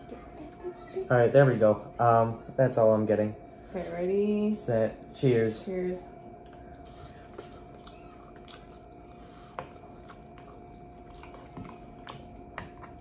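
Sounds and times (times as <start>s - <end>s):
faint steady hum: 0.0s - 13.0s
chewing noodles: 6.4s - 13.0s.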